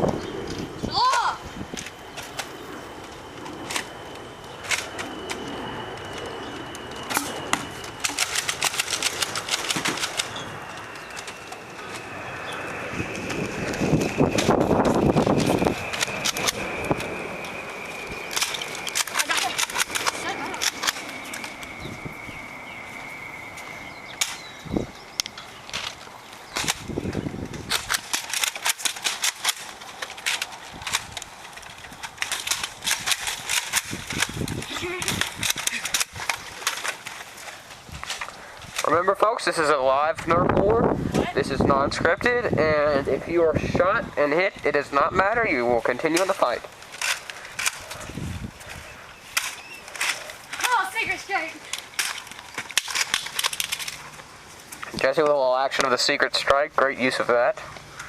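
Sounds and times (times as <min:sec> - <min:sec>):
toy dart blasters clicking and snapping: 0:00.0 - 0:12.1, 0:13.2 - 0:17.6, 0:18.2 - 0:21.7, 0:24.1 - 0:24.5, 0:25.2 - 0:37.3, 0:46.0 - 0:48.1, 0:49.3 - 0:54.2
faint high whine: 0:00.0 - 0:58.0.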